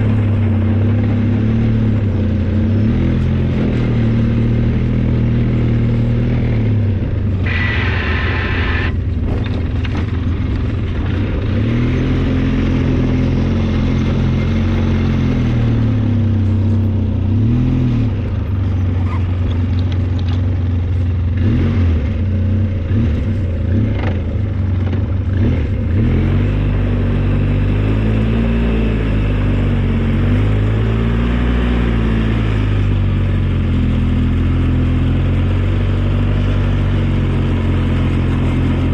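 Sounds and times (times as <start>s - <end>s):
snowplow engine running hard: 0.0s - 38.9s
knocks and clanks: 9.0s - 11.2s.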